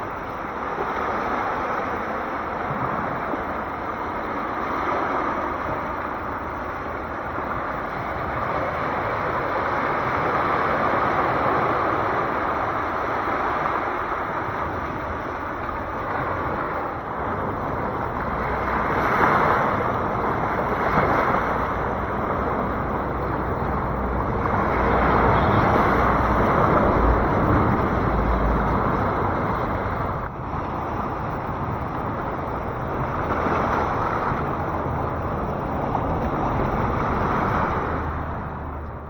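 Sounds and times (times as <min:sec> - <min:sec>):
sea waves washing onto shore: 0:00.0 - 0:39.0
wind rumble on microphone: 0:00.0 - 0:39.0.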